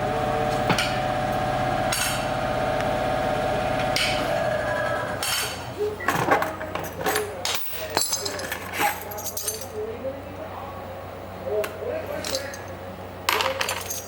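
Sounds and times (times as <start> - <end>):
steady machine hum: 0.0 - 7.4
metal knocks and clinks: 6.1 - 9.8, 12.2 - 14.0.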